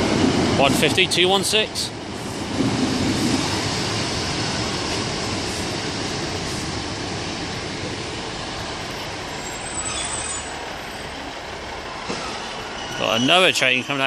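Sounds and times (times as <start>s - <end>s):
diesel train passing: 0.0s - 14.0s
high wheel squeal: 8.8s - 14.0s.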